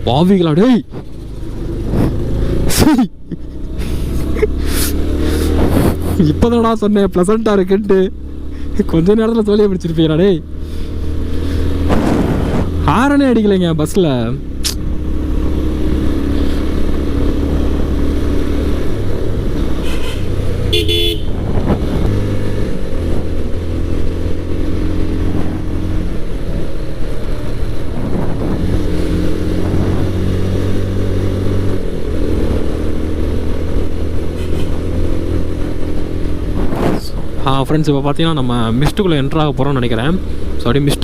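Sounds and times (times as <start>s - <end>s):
motorcycle engine running: 0.0s - 41.0s
vehicle horn: 19.8s - 21.4s, 34.3s - 34.9s.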